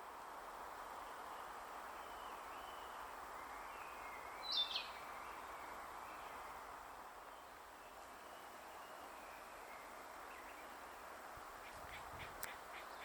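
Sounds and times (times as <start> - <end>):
steady outdoor hiss: 0.0 - 13.0
faint distant bird song: 0.5 - 13.0.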